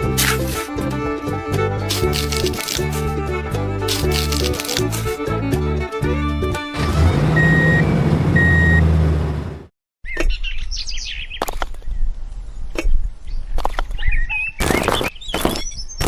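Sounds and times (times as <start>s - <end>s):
low engine-like hum: 6.7s - 9.7s.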